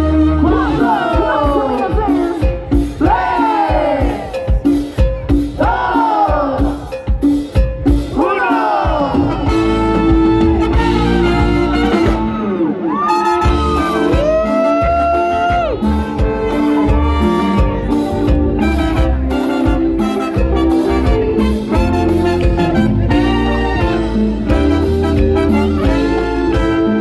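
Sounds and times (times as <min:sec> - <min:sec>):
horns holding long notes: 0:00.0 - 0:02.1, 0:09.1 - 0:27.0
latin band playing: 0:00.0 - 0:27.0.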